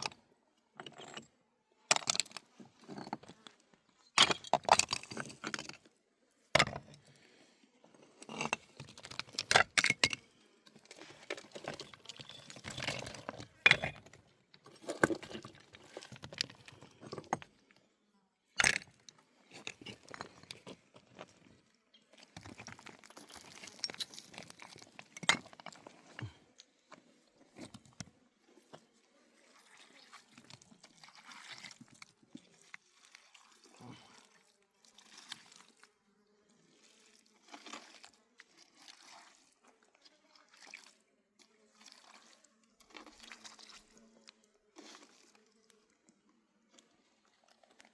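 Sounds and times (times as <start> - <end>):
rustling and scraping handling noises: 8.0 - 17.6.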